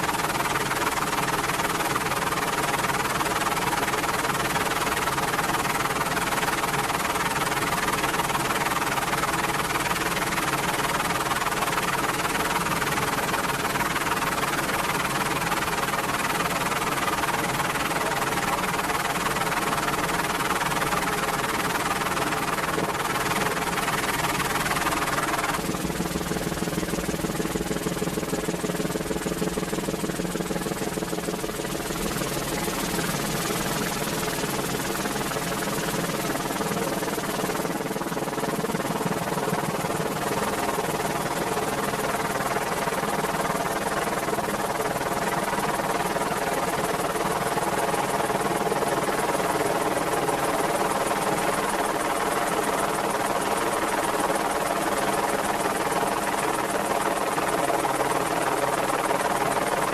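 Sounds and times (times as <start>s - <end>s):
helicopter rotors and engines droning: 0.0s - 59.9s.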